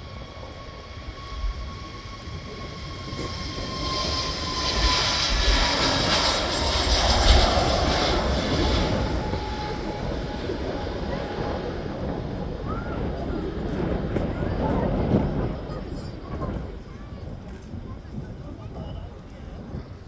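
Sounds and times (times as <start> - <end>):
thin jet whine: 0.0 - 14.2
jet airliner taking off: 0.0 - 20.0.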